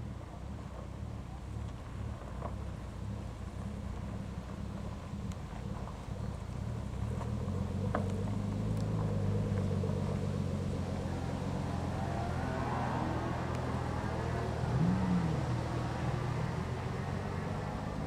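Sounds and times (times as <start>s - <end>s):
car engine running at low revs: 0.0s - 18.0s.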